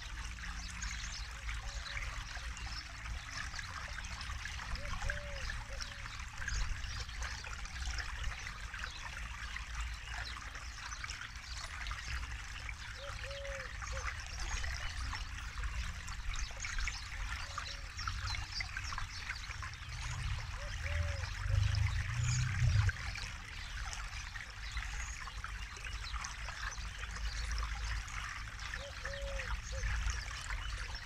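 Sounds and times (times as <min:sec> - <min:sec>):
low rumble: 0:19.8 - 0:23.2.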